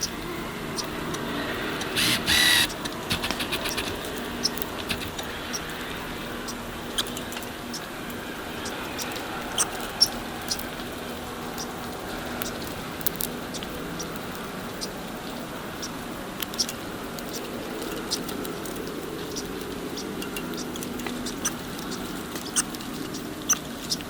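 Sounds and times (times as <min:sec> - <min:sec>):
sharp clicks and scratches: 0:01.8 - 0:05.8
short loud pitched calls: 0:02.0 - 0:04.0.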